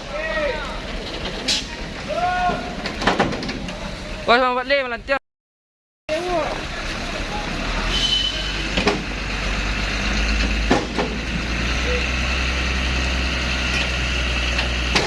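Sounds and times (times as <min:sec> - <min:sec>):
heavy truck engine running: 0:00.0 - 0:04.3, 0:06.1 - 0:15.0.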